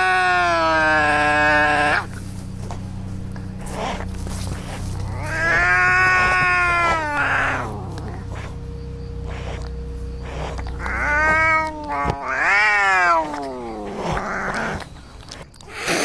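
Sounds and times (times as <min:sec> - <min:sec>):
cats yowling: 0:00.0 - 0:02.2, 0:03.6 - 0:16.0
cat hissing: 0:03.6 - 0:08.6, 0:09.2 - 0:16.0.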